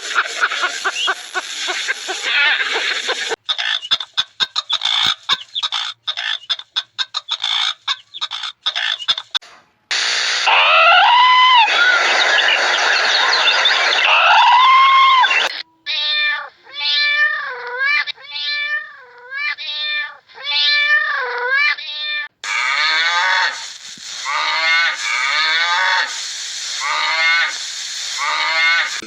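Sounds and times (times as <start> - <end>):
cat meowing: 14.1 - 23.7.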